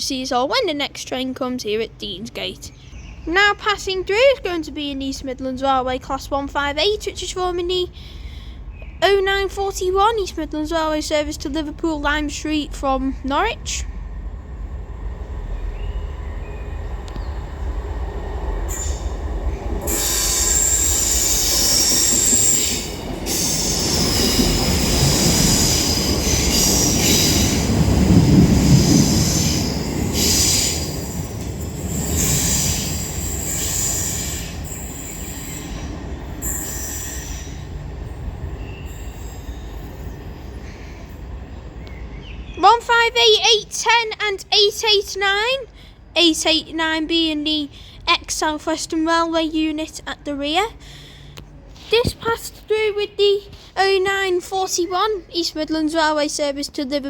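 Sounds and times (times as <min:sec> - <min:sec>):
diesel train rumbling past: 0:00.0 - 0:57.0
train wheels squealing on rails: 0:18.6 - 0:42.4.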